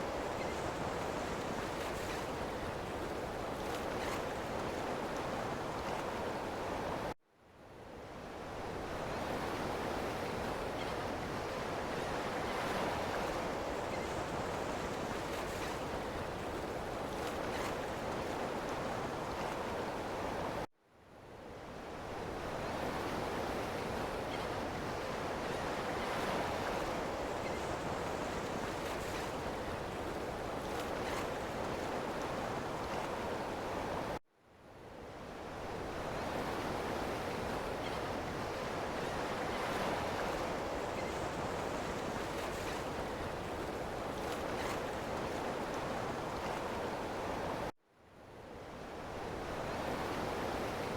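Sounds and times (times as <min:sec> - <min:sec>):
ocean surf washing on shore: 0:35.4 - 0:47.7, 0:48.9 - 0:50.9.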